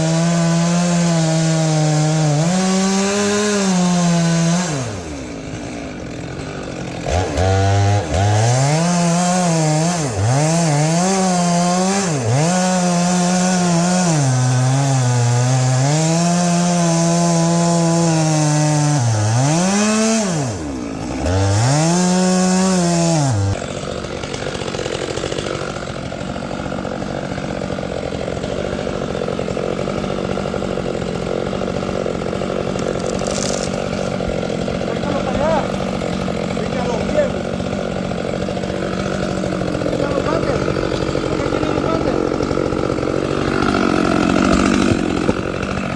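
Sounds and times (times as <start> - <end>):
chainsaw cutting hard wood: 0.0 - 45.9.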